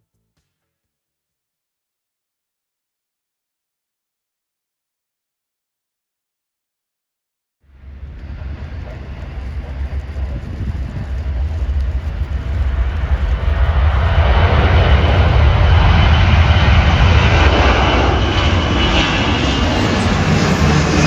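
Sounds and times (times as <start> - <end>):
aircraft engine rumble: 7.7 - 21.0.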